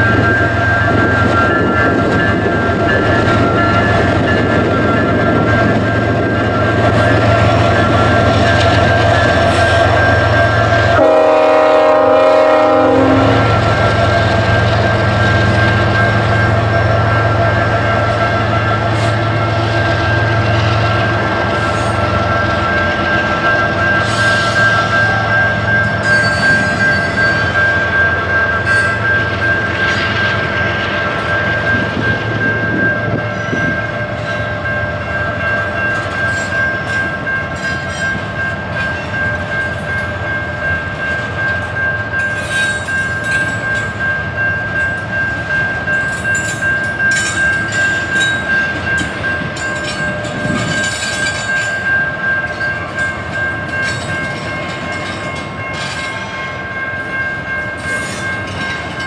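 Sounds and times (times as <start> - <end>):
train rumble: 0.0 - 59.0
train wheels clicking on rails: 0.0 - 59.0.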